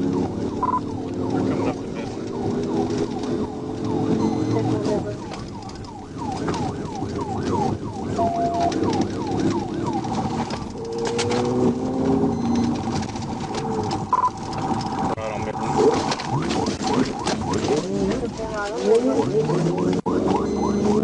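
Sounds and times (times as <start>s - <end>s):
car engine at high speed: 0.0s - 21.0s
police siren yelping: 0.0s - 21.0s
road noise: 0.0s - 21.0s.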